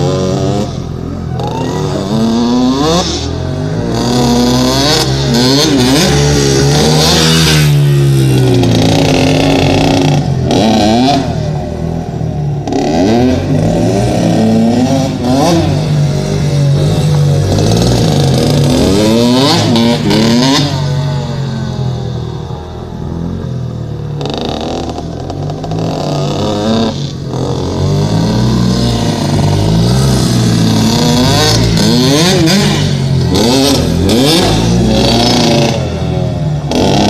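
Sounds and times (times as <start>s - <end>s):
dirt bike engine revving: 0.0s - 22.0s, 23.2s - 37.0s.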